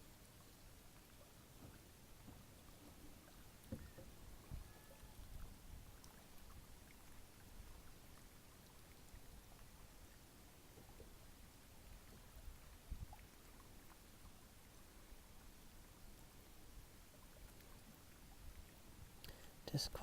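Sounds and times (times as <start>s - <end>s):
small waves lapping against hull: 0.0s - 20.0s
soft knocks on boat: 1.6s - 4.7s.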